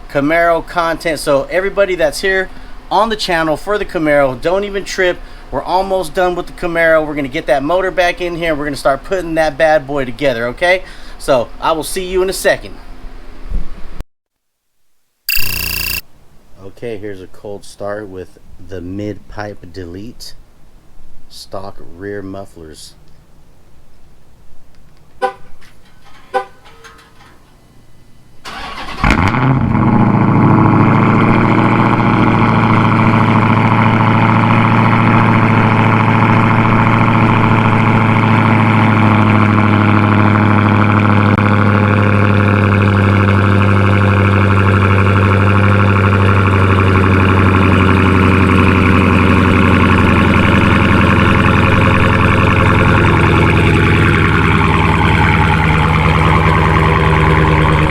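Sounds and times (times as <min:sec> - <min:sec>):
clicks: 0:15.3 - 0:16.0
car engine starting and idling: 0:28.4 - 0:57.9.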